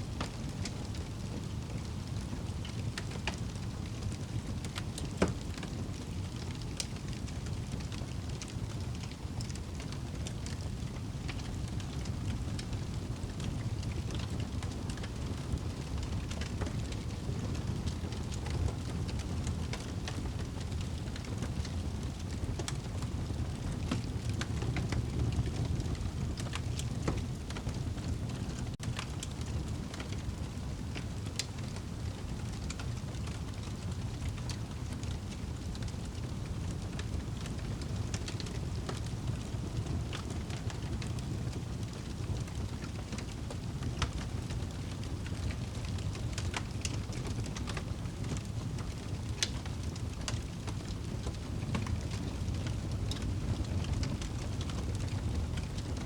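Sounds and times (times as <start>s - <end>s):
fire crackles and pops: 0.0s - 56.0s
low rumble of flames: 0.0s - 56.0s.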